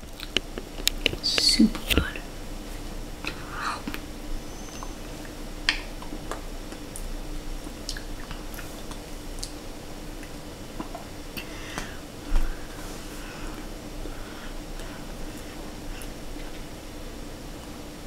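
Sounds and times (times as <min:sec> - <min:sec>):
person chewing and smacking: 0:00.0 - 0:01.2, 0:04.8 - 0:12.8.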